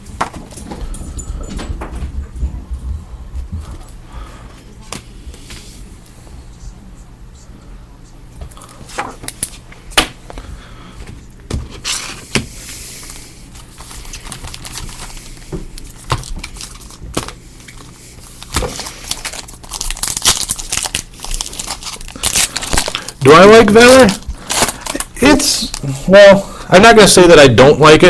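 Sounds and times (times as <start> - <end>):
card wrappers tearing and crinkling: 13.0 - 26.0.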